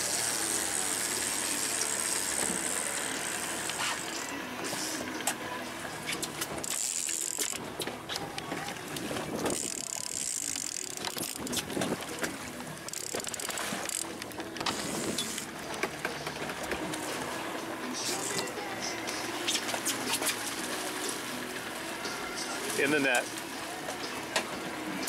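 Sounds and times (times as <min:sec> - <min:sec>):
reel mechanism clicking: 0:00.0 - 0:04.3, 0:06.2 - 0:08.4, 0:09.5 - 0:11.9, 0:12.8 - 0:16.6
fishing reel cranking: 0:00.0 - 0:04.4, 0:06.2 - 0:08.3, 0:09.5 - 0:11.8, 0:12.8 - 0:15.9
reel drag giving line: 0:00.0 - 0:24.2.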